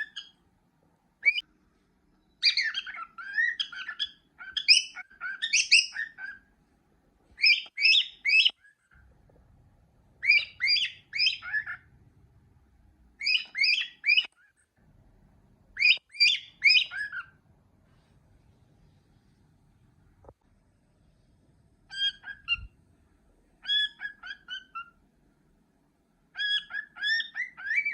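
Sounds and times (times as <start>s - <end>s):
cockatiel whistling: 1.2s - 1.4s, 2.4s - 6.4s, 7.4s - 8.7s, 10.2s - 11.8s, 13.2s - 14.4s, 15.8s - 17.4s, 21.9s - 22.8s, 23.6s - 25.0s, 26.4s - 27.9s.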